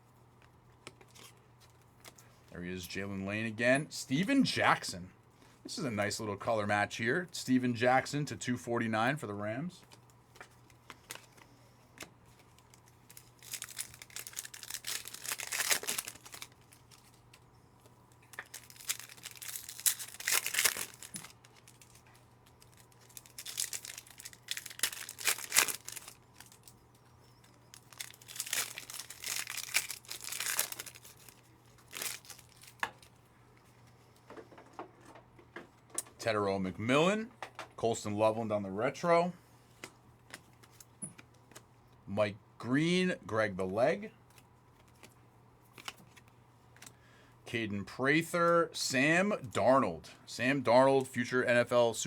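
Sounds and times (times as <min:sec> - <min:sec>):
foil wrappers tearing and crinkling: 0:12.4 - 0:17.4, 0:18.1 - 0:33.1.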